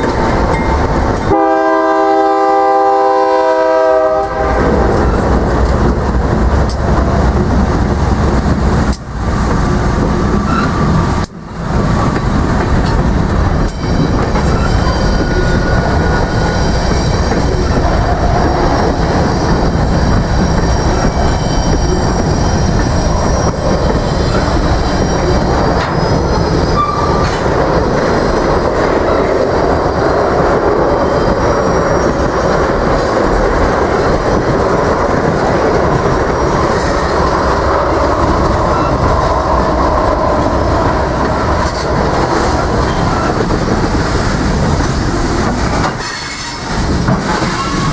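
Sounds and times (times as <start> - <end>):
train wheels rumbling on rails: 0.0 - 47.9
wheel squeals: 13.6 - 17.8, 45.8 - 47.9.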